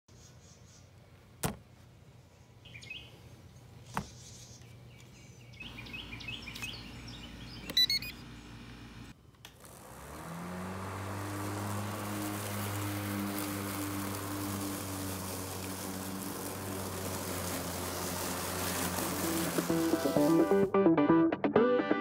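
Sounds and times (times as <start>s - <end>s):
birds chirping: 2.2s - 9.1s.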